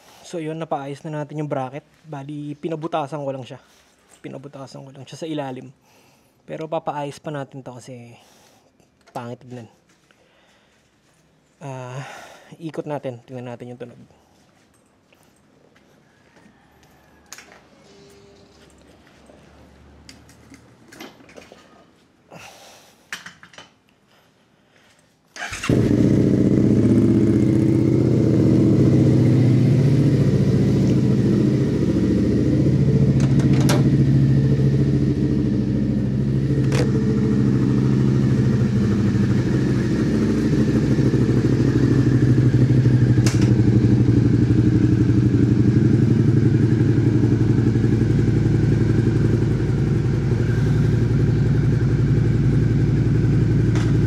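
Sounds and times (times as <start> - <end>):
motorcycle engine idling: 25.4 - 54.0.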